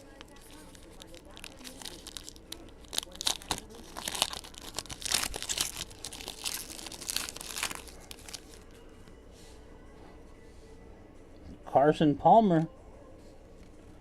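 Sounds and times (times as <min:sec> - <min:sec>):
wrapper tearing and crinkling: 0:00.0 - 0:08.7.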